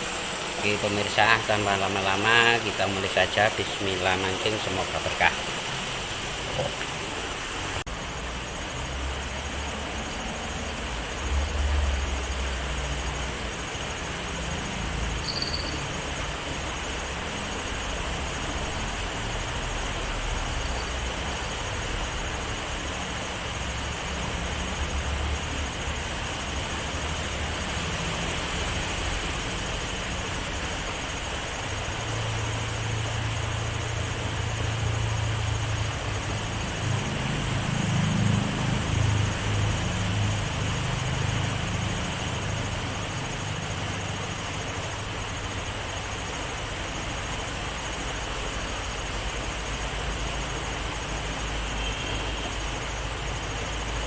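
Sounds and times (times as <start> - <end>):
passing vehicles rumbling: 0.0 - 45.6
flowing river water: 0.0 - 54.0
short high chirp: 15.2 - 15.8.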